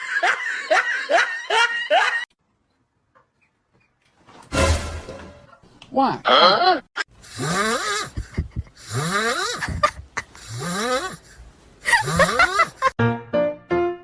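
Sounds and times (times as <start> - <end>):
piano music: 13.0 - 14.0.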